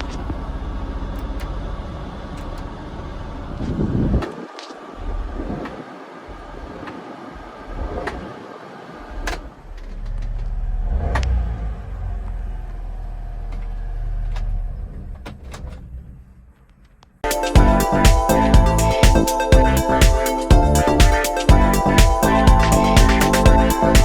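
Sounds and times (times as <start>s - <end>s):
engine rumble: 0.0s - 4.2s, 9.0s - 17.0s.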